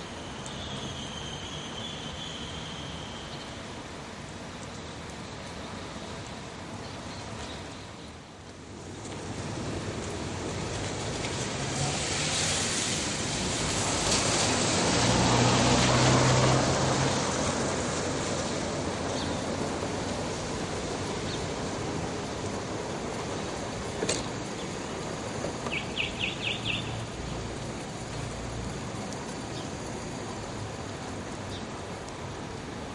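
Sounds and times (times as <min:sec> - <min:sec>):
diesel locomotive passing: 0:08.5 - 0:32.9.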